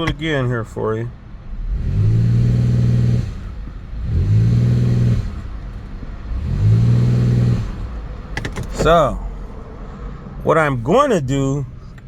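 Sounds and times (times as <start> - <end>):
car engine revving: 1.5 - 9.7.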